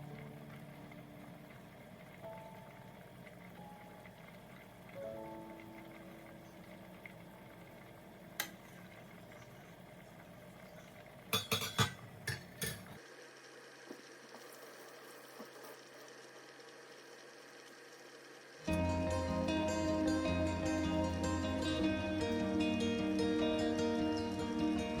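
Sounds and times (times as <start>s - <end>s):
low kitchen room tone: 0.0s - 25.0s
utensils and dishes clinking: 11.3s - 13.0s.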